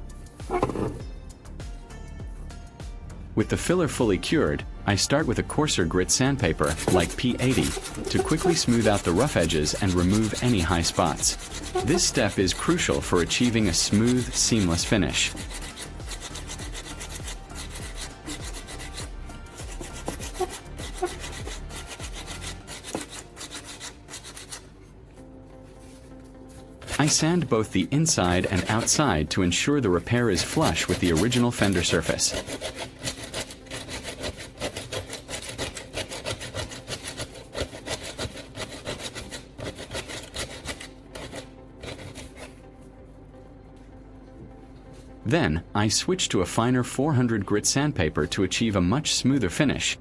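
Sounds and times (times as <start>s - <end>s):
sandpaper rasping on plastic: 0.5s - 1.0s, 6.1s - 24.8s, 25.7s - 42.6s.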